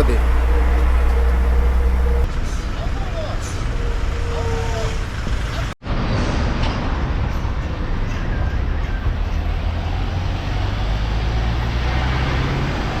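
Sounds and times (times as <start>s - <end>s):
truck engine drone: 0.0s - 5.8s
road and wind noise: 0.0s - 13.0s.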